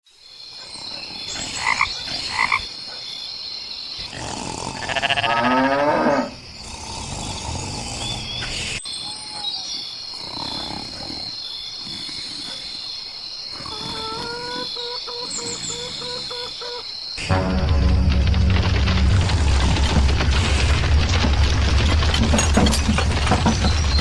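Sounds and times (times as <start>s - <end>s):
bird-like chirps: 8.0s - 17.1s.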